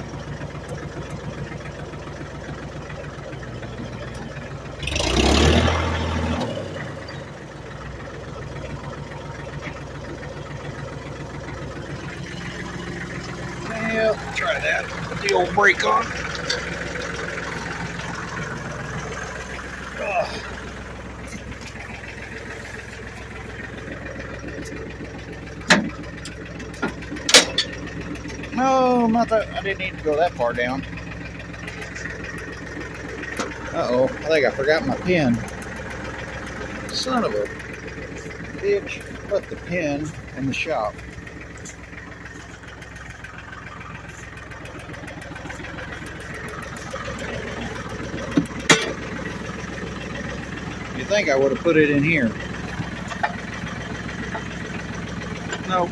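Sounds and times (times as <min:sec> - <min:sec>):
diesel engine idling: 0:00.0 - 0:55.9
sharp metallic clank: 0:27.3 - 0:27.7, 0:48.6 - 0:49.0.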